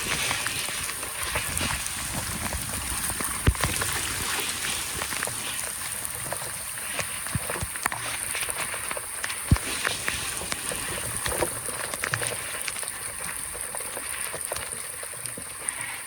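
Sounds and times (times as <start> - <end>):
rushing water: 0.0 - 16.0.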